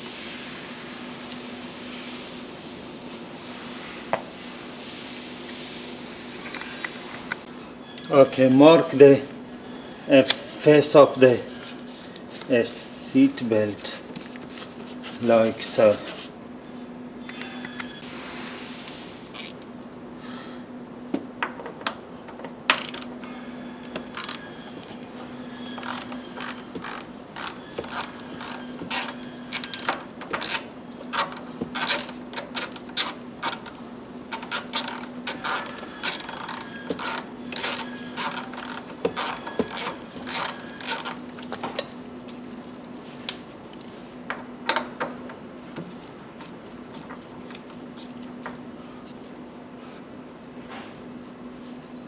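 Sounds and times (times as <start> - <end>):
hand tools clicking and rattling: 22.7 - 23.1, 23.9 - 24.5, 25.7 - 42.0.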